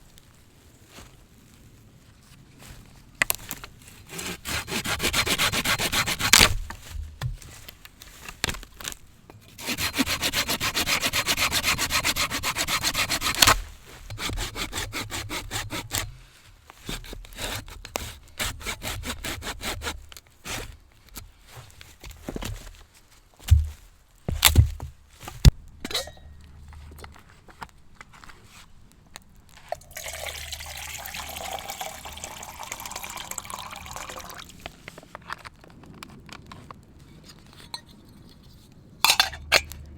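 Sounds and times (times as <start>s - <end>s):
hand saw cutting wood: 4.1s - 6.8s, 9.5s - 16.2s, 16.8s - 20.8s.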